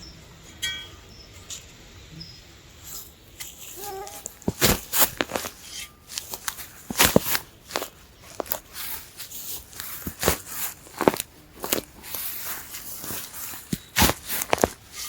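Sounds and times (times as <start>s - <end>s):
dry twigs snapping and crunching: 3.4s - 15.0s.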